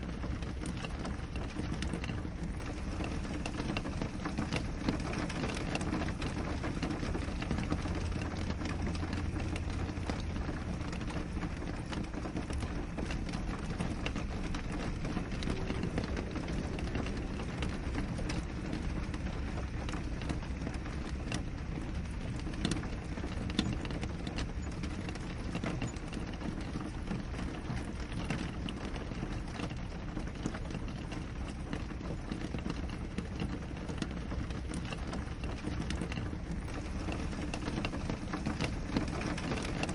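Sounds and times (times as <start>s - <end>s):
rain on a window: 0.0s - 39.9s.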